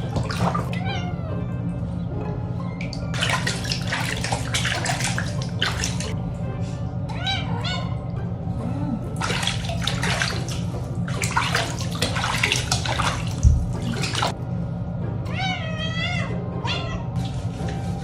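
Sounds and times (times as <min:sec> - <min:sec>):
water splashing and running: 0:00.0 - 0:00.8, 0:02.9 - 0:06.2, 0:09.1 - 0:14.4
cat meowing: 0:00.7 - 0:01.4, 0:07.1 - 0:08.1, 0:15.3 - 0:17.2.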